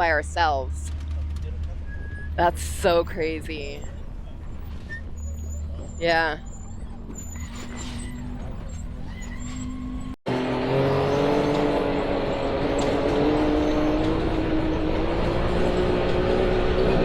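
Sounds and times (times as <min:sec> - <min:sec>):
engine hum: 0:00.0 - 0:17.0
engine note rising in pitch: 0:10.0 - 0:17.0.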